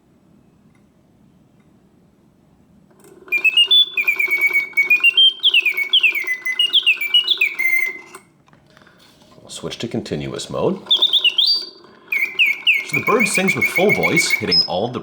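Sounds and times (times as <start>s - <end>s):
clockwork mechanism ticking: 3.3s - 8.2s, 10.4s - 15.0s
mechanical bird whistling: 3.3s - 8.2s, 10.6s - 15.0s.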